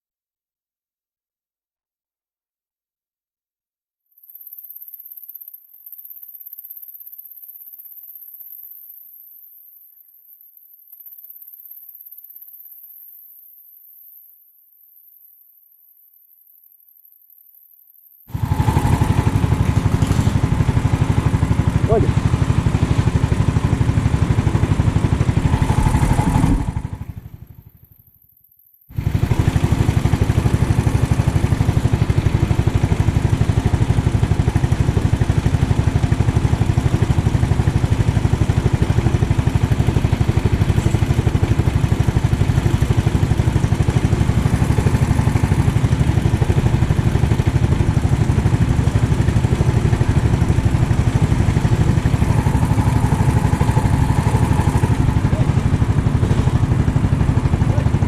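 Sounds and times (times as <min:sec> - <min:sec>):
kart engine running: 0:18.3 - 0:28.0, 0:28.9 - 0:58.0.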